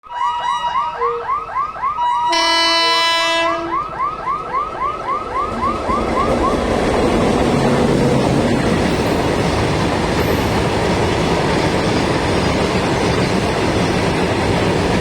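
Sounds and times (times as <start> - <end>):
locomotive horn blast: 2.0 - 3.9
train rumble and wheel clatter: 2.3 - 15.0.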